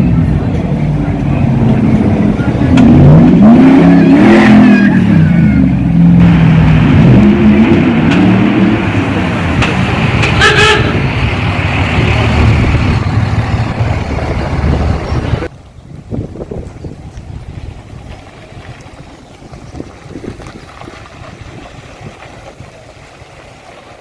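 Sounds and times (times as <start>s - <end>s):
car engine revving: 0.0s - 15.5s.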